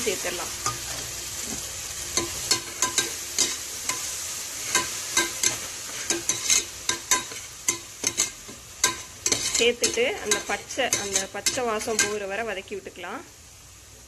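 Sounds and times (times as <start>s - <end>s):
onions sizzling in oil: 0.0s - 14.0s
spatula scraping and tapping pot: 2.2s - 12.2s.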